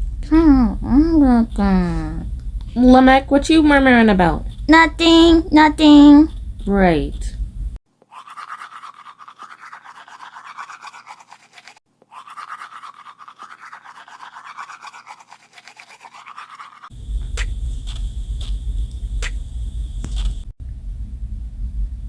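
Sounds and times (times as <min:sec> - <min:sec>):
low rumble: 0:00.0 - 0:07.8, 0:17.0 - 0:22.0
toothbrush scrubbing teeth: 0:08.0 - 0:19.4.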